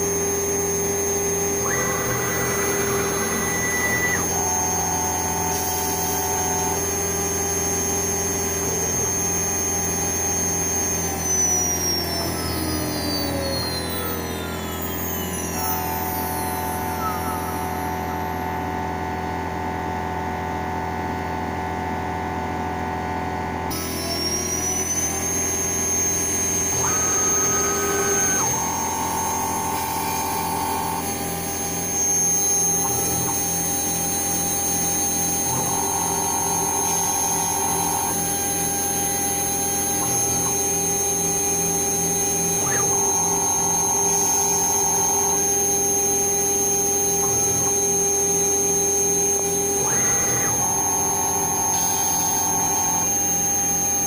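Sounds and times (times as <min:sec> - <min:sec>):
dust extraction running: 0:00.0 - 0:19.9
stepper motors whining: 0:00.0 - 0:20.9, 0:23.7 - 0:54.0
router drilling circuit board: 0:00.0 - 0:54.0
spindle high whine: 0:00.0 - 0:54.0.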